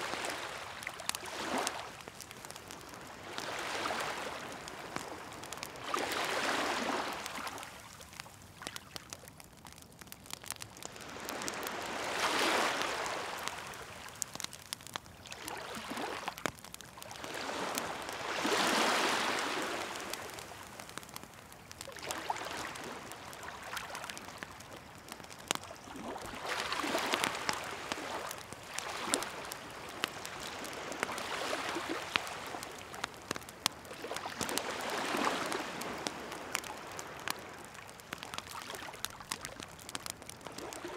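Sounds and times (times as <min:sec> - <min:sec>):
sea waves washing in: 0:00.0 - 0:07.6, 0:11.0 - 0:14.2, 0:17.2 - 0:20.9
wood fire crackling: 0:00.0 - 0:40.9.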